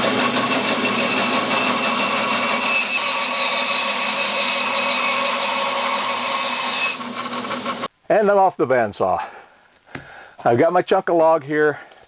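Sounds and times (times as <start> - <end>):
bandsaw cutting log: 0.0 - 7.9.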